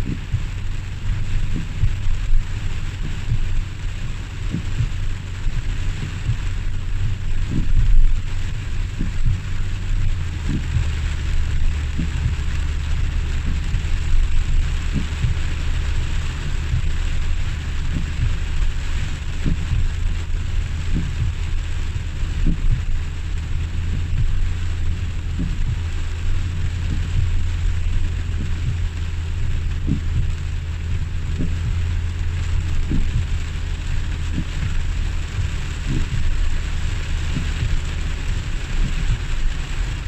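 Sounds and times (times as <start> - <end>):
short thumps: 0.0 - 15.7, 19.3 - 21.5, 23.6 - 32.2, 32.8 - 36.4, 38.8 - 39.3
heavy rain falling: 0.0 - 40.0
low rumble: 0.0 - 40.0.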